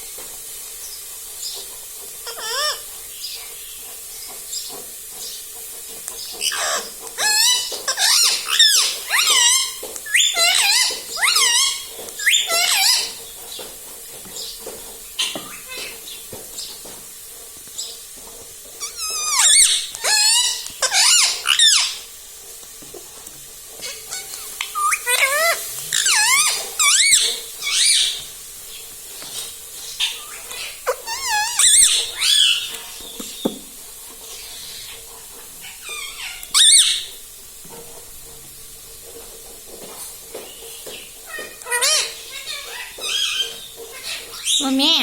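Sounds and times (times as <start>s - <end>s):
parrot squeaky calls: 2.2s - 2.9s, 6.4s - 13.2s, 18.8s - 22.1s, 23.8s - 28.3s, 29.3s - 33.0s, 35.6s - 37.2s, 41.2s - 45.0s.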